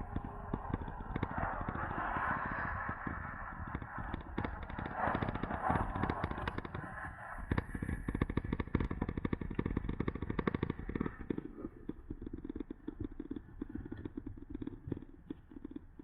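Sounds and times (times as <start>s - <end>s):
wind and road rumble: 0.0s - 11.4s.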